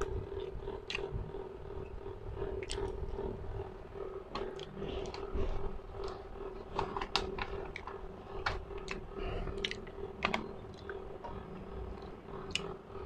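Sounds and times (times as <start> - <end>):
wet chewing clicks: 0.0 - 1.4, 2.4 - 3.3, 4.3 - 5.4, 6.0 - 12.8
faint electrical hum: 0.0 - 13.0.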